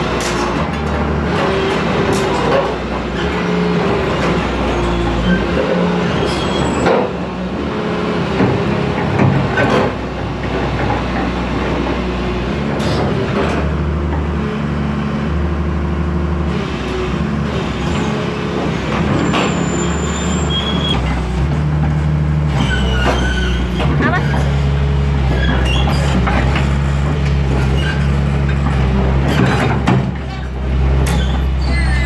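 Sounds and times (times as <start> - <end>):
heavy diesel engine running: 0.0 - 32.0
short high squeals: 19.2 - 21.1, 31.1 - 32.0.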